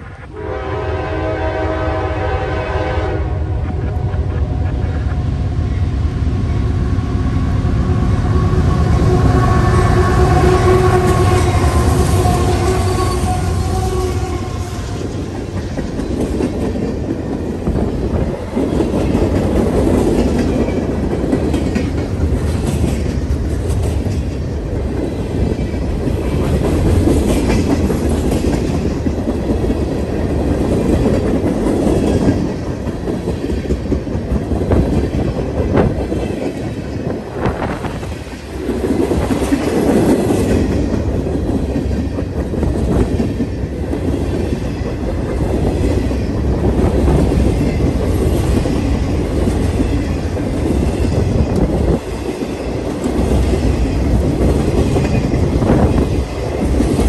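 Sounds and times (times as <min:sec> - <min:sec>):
freight train rolling past: 0:00.0 - 0:57.0
train wheels clicking over rail joints: 0:11.0 - 0:57.0.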